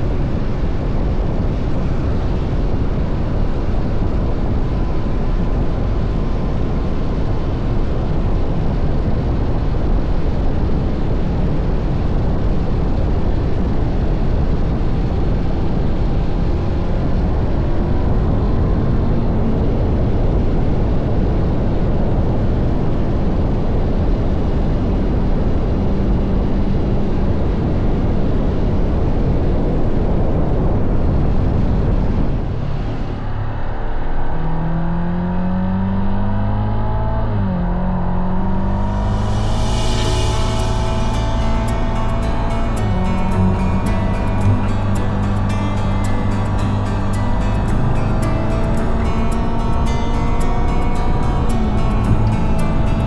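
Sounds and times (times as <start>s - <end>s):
wind rush on microphone: 0.0s - 34.5s.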